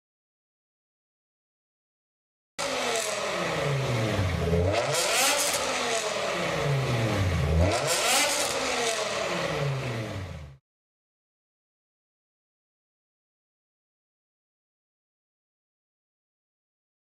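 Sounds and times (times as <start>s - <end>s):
car engine revving: 2.6s - 10.6s.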